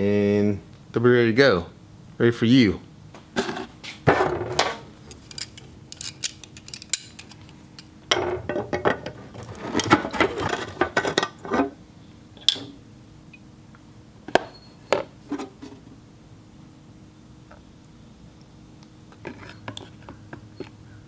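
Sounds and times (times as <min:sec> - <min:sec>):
metal holders clinking: 0:04.1 - 0:11.7.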